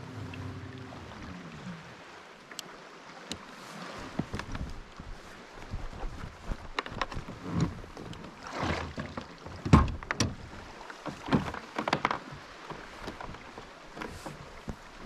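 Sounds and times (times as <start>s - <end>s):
water splashing against kayak hull: 0.0s - 15.0s
knocks on hull: 8.5s - 10.4s.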